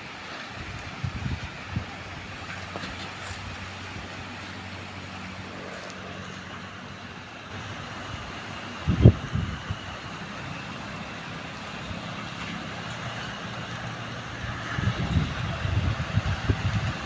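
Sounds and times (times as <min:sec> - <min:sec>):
wind buffeting microphone: 0:00.4 - 0:06.6, 0:07.5 - 0:17.0
strong wind blowing: 0:00.6 - 0:02.5, 0:07.5 - 0:10.4, 0:14.0 - 0:17.0.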